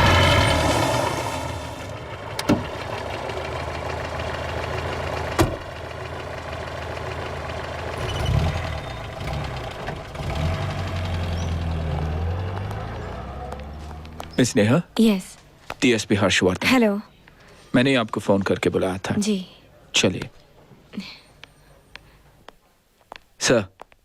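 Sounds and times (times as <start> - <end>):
engine running: 0.0 - 14.6.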